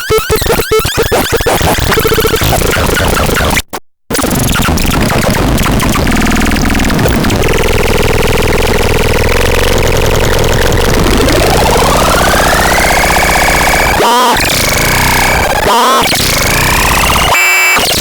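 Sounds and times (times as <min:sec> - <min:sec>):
buzzing electronic drone: 0:06.0 - 0:18.0.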